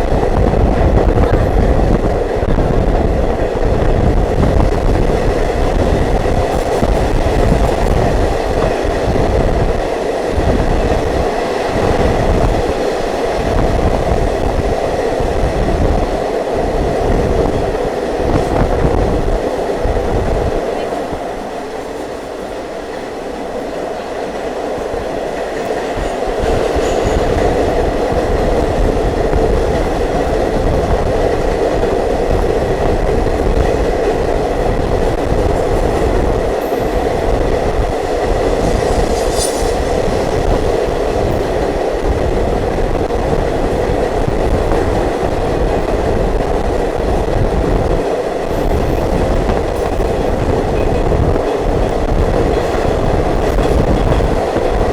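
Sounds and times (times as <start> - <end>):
train wheels rumbling on rail: 0.0 - 54.9
wheel squeal on rail: 26.2 - 27.8, 38.0 - 41.6.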